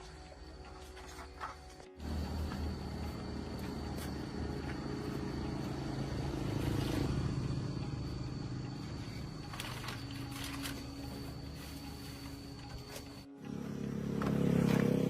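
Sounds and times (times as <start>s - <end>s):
faint high whine: 2.0s - 14.0s
low motor rumble: 2.0s - 15.0s.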